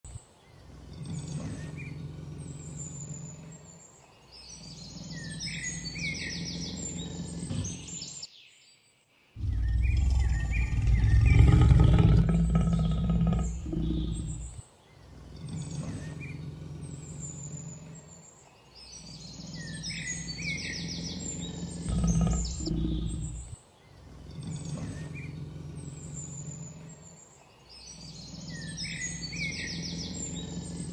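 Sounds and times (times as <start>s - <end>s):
small birds chirping: 0.0s - 30.9s
steady low background noise: 0.1s - 30.9s
low rumbling noise: 9.4s - 14.6s, 21.8s - 23.6s.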